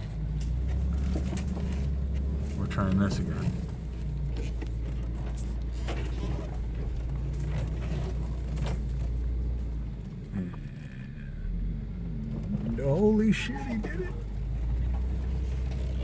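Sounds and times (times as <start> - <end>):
knocks and scrapes: 0.0 - 9.7
car engine running under load: 0.0 - 16.0.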